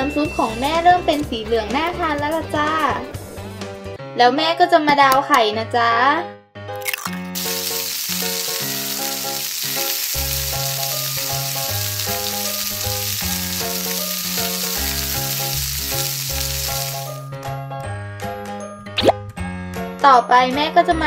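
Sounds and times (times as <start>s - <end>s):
light background music: 0.0s - 21.0s
egg frying sizzle: 6.8s - 17.2s.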